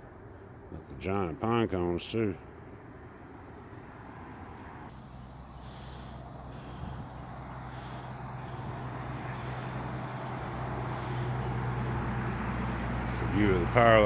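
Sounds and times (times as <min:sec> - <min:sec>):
highway traffic rushing: 0:00.0 - 0:14.0.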